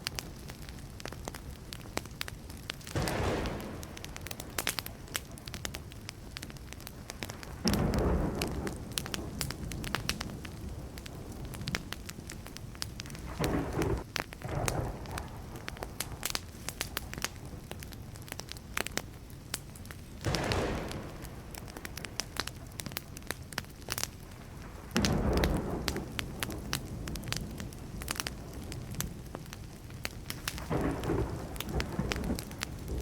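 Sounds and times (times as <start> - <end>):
wood fire crackling and popping: 0.0 - 33.0
low rumbles of thunder: 2.9 - 6.1, 6.8 - 17.7, 20.2 - 23.4, 24.1 - 33.0.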